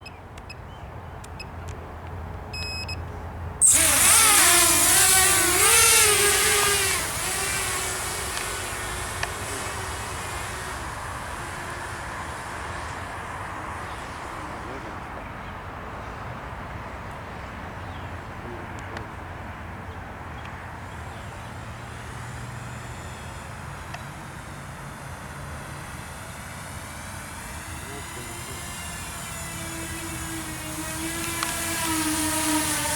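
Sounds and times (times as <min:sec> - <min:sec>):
propeller and wind noise: 0:00.0 - 0:32.9
quadcopter motors buzzing whine: 0:02.4 - 0:32.9
short electronic beeps: 0:02.5 - 0:03.0.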